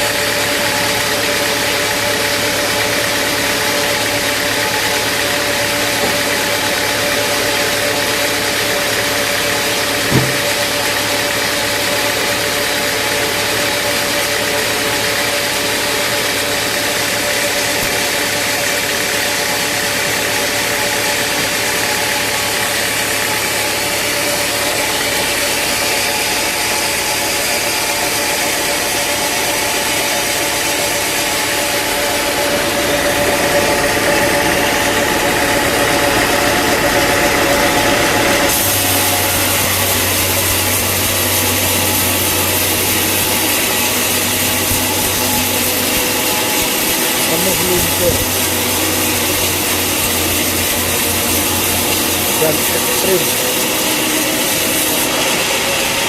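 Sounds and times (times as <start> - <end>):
sawmill engine running: 0.0 - 56.0
knock: 6.0 - 6.5, 10.1 - 10.7.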